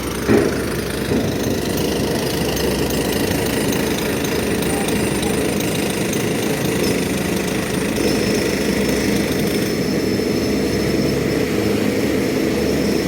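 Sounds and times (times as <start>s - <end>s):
heavy diesel engine running: 0.0s - 13.0s
thin high whine: 9.5s - 13.0s.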